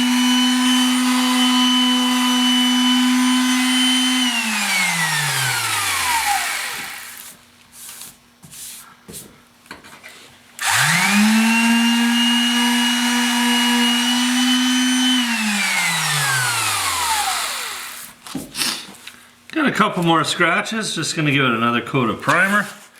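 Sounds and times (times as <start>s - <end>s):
high-speed electric motor whirring: 0.0s - 7.2s, 10.6s - 18.2s.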